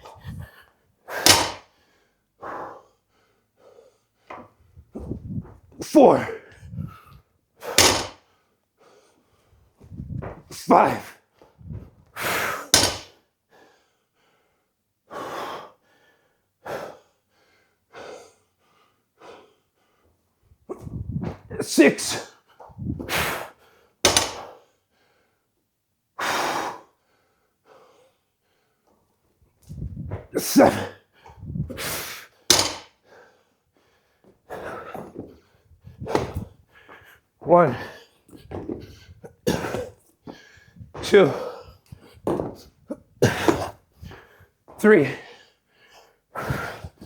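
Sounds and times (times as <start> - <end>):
barbell thunk on floor: 1.2 - 1.6, 7.8 - 8.2, 12.8 - 13.1, 24.1 - 24.5, 32.5 - 32.9, 36.0 - 36.5
hard gasping breaths: 30.3 - 47.0
person breathing hard: 43.2 - 44.6, 45.2 - 47.0.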